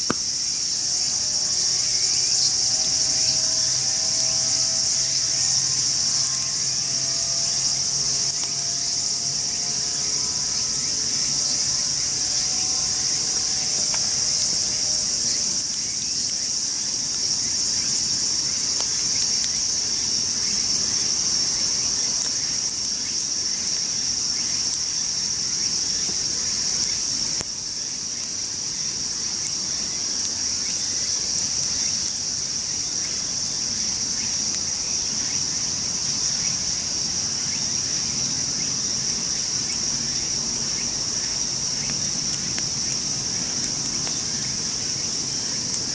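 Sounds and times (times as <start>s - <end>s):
crickets chirping chorus: 0.0s - 45.9s
faint ticks: 2.0s - 11.3s, 40.7s - 45.9s.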